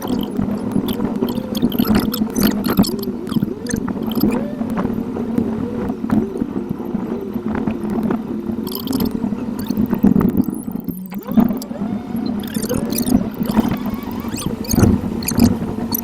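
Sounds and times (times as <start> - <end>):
sped-up warbling car noise: 0.0 - 4.8, 8.6 - 16.0
steady hum: 0.0 - 16.0.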